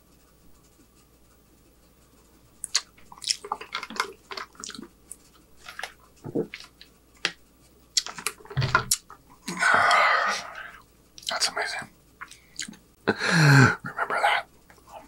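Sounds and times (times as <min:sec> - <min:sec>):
wet clicky chewing: 0:02.6 - 0:10.0.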